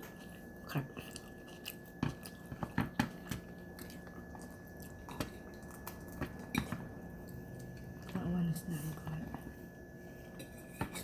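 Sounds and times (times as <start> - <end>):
person chewing with wet smacks: 0.0 - 8.2.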